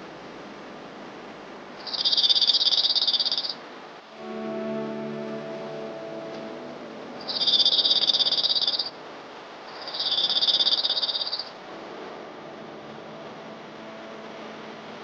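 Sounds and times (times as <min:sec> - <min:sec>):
bird trilling: 0:07.2 - 0:08.9, 0:09.8 - 0:11.5.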